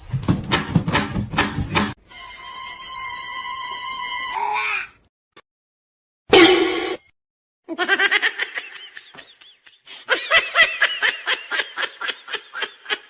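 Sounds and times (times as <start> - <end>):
high-pitched laughter: 7.7 - 13.0.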